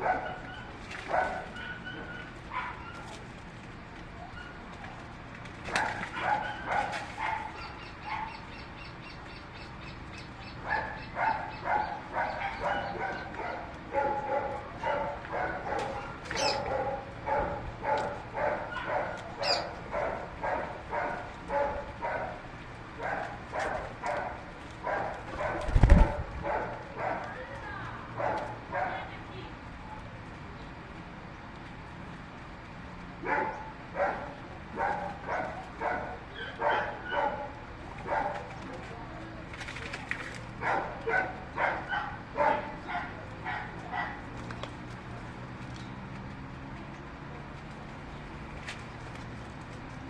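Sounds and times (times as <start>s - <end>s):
animal calling: 15.7s - 17.0s, 18.7s - 19.8s.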